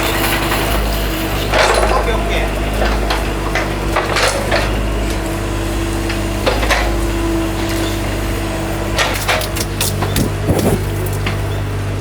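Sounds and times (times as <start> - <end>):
low machine hum: 2.0 - 12.0
knocks and clatter: 9.0 - 11.5.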